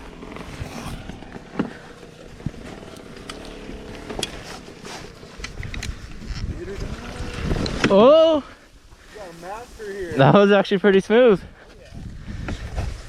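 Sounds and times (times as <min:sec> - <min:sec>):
dirt bike engine idling: 0:00.0 - 0:09.3.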